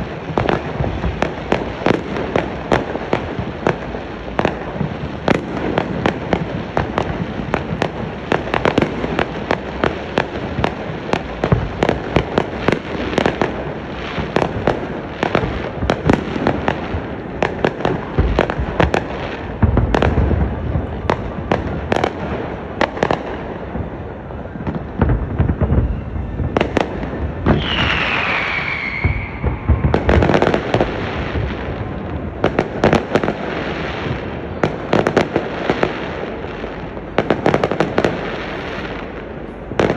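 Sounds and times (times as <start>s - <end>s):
fireworks bangs and crackling: 0.0s - 39.9s
heavy fireworks booms: 0.0s - 39.9s
high falling whistle: 27.5s - 30.2s.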